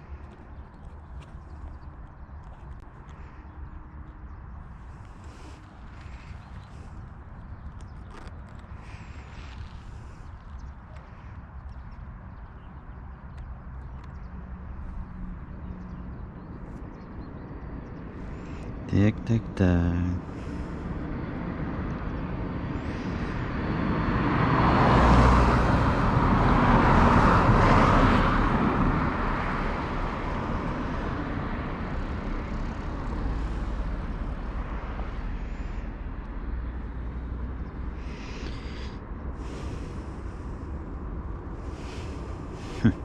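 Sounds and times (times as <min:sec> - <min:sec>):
road vehicle passing: 0:17.8 - 0:43.0.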